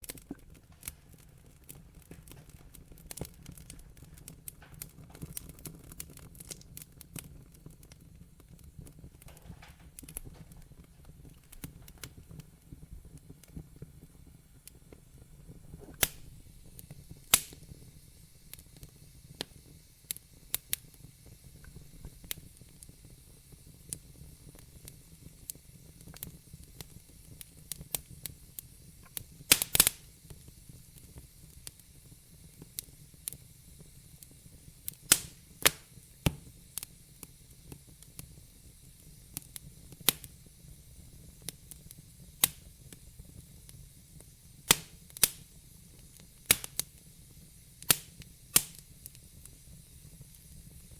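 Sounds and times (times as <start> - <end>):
fire popping and snapping: 0.0 - 50.9
low rumble and hiss: 0.0 - 50.9
wood fire crackling: 0.0 - 50.9.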